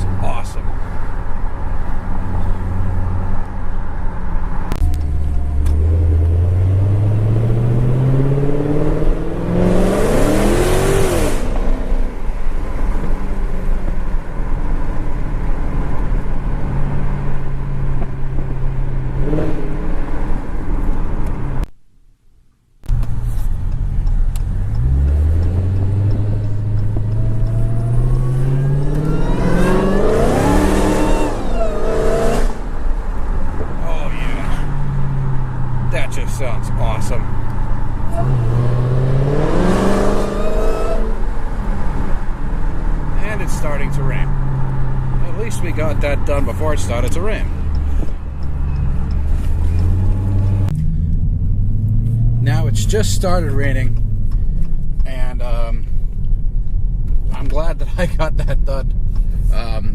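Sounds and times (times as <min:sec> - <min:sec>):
car engine accelerating hard: 0:04.5 - 0:21.6, 0:23.6 - 0:55.2
supercharger whine: 0:23.5 - 0:35.9.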